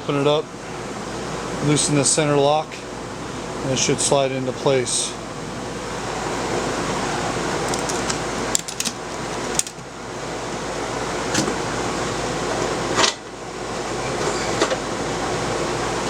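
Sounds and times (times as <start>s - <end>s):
air conditioner humming: 0.0s - 16.0s
metal clicks and knocks: 7.7s - 9.9s.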